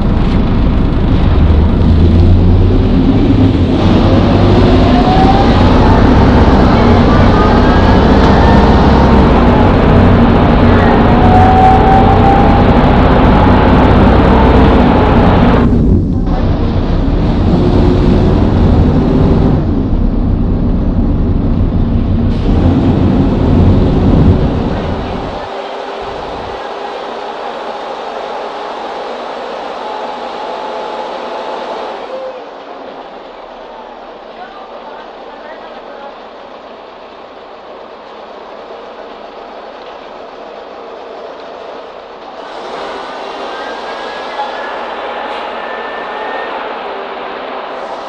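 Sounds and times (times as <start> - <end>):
engine whine rising in pitch: 0.0 - 32.2
minibus engine droning: 0.0 - 48.0.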